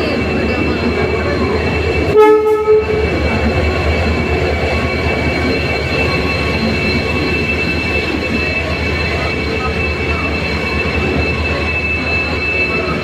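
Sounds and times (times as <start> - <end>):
train rumbling: 0.0 - 13.0
high-pitched wheel squeal: 0.5 - 13.0
train horn blast: 2.1 - 3.0.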